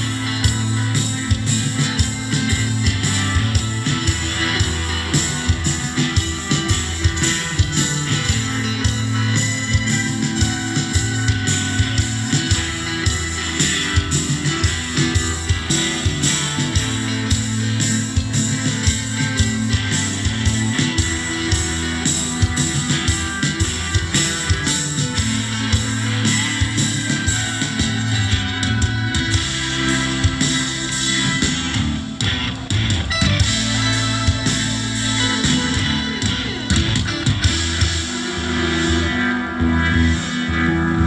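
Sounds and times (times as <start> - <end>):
bass guitar: 0.0 - 41.0
distorted electric guitars: 0.0 - 41.0
drum kit beat: 0.0 - 41.0.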